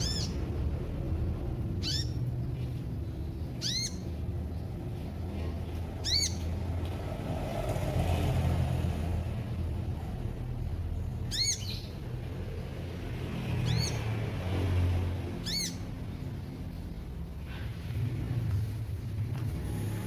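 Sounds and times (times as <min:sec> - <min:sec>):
bird chirps: 0:00.0 - 0:00.5, 0:01.8 - 0:02.3, 0:03.4 - 0:04.3, 0:06.0 - 0:06.5, 0:11.2 - 0:12.0, 0:13.6 - 0:14.1, 0:15.4 - 0:16.0.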